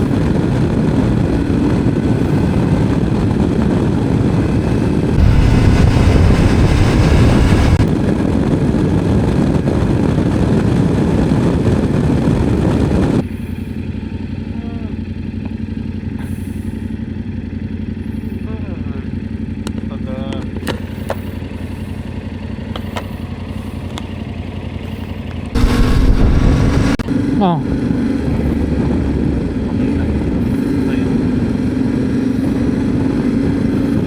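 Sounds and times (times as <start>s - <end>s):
wind rush on microphone: 0.0s - 13.2s, 25.6s - 34.0s
motorcycle engine running: 0.0s - 34.0s.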